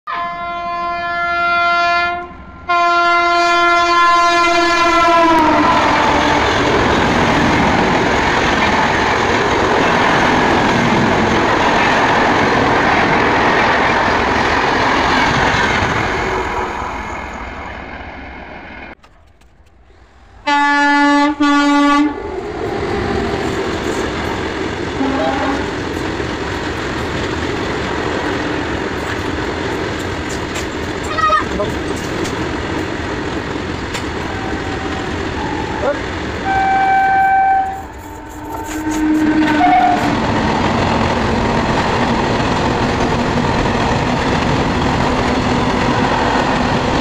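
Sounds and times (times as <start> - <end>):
locomotive horn blasts: 0.1 - 6.5, 20.4 - 22.3, 25.0 - 25.7, 36.4 - 40.1
short train horn blasts: 0.1 - 6.5, 20.4 - 22.4, 25.0 - 25.7, 36.4 - 40.1
train coaches rumbling and clattering: 2.1 - 47.0.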